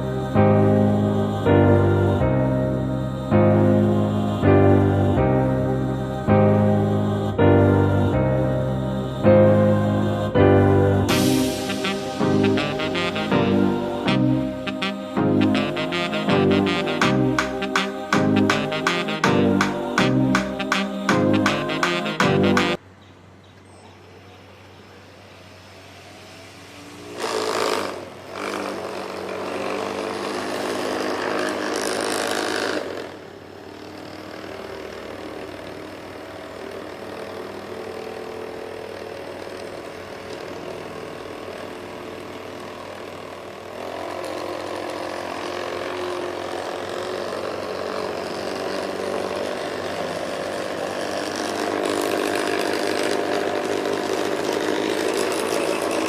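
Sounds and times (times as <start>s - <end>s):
toy helicopter motor whining: 26.3s - 56.0s.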